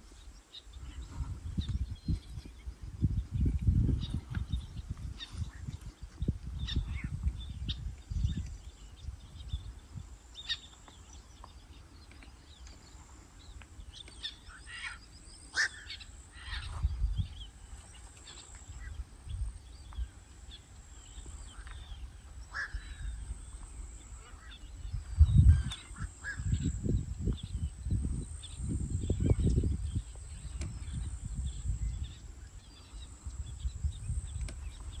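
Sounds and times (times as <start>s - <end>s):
birds chirping: 0.0s - 35.0s
wind buffeting microphone: 0.0s - 35.0s.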